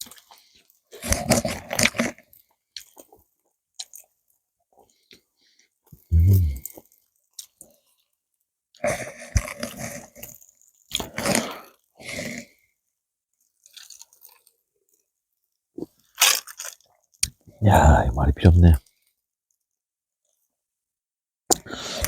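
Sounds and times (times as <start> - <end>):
person chewing: 6.0 - 7.6.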